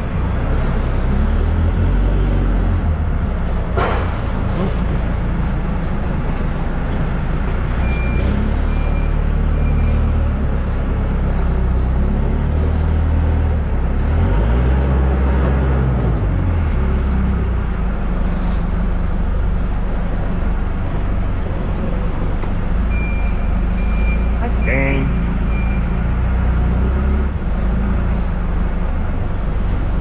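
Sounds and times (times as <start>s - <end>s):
loader engine running: 0.0s - 30.0s
reversing beeper: 22.9s - 26.0s.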